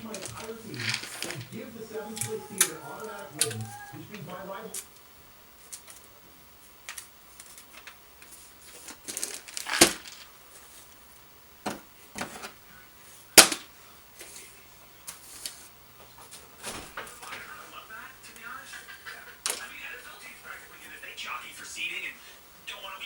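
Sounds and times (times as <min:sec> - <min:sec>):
paper rustling: 0:00.0 - 0:04.9, 0:05.6 - 0:11.0, 0:12.2 - 0:18.8.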